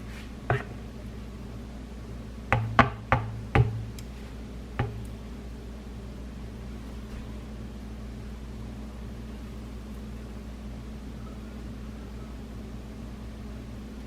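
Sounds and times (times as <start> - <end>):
steady low hum: 0.0 - 14.0
sharp knocks: 2.6 - 4.0, 4.8 - 5.1.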